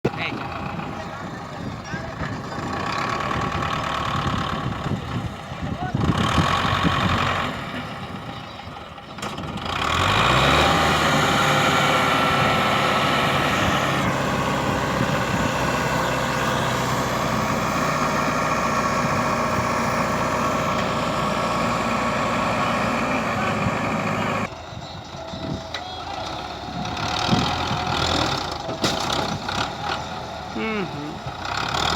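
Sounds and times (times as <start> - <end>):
tractor diesel engine revving: 0.0 - 31.9.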